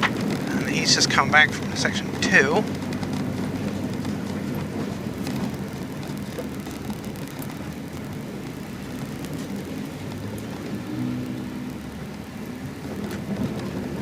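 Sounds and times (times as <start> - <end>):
air conditioning running: 0.0 - 10.6
car engine idling: 0.0 - 14.0.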